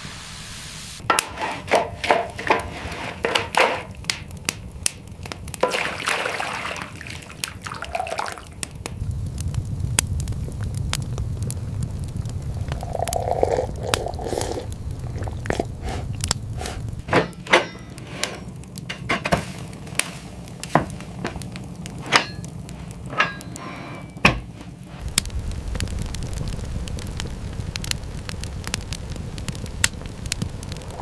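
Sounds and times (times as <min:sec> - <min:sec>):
steady low rumble: 0:06.9 - 0:31.0.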